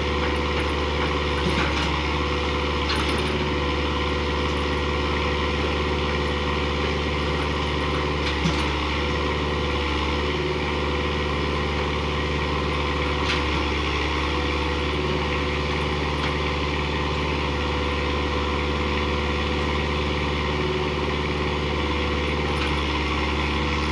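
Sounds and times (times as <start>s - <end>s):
diesel tractor engine running: 0.0s - 23.9s.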